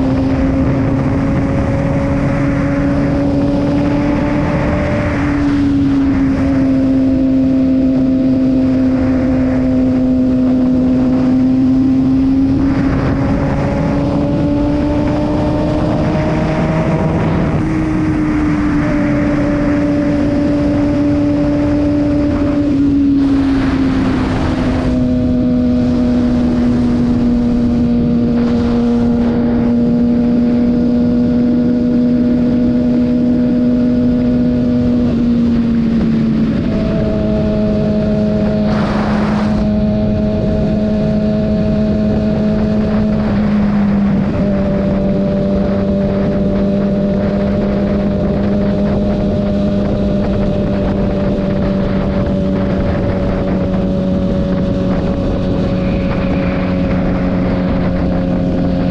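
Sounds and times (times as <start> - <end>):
motorcycle engine cruising: 0.0 - 58.9
rush of air: 38.3 - 39.8, 52.6 - 58.9.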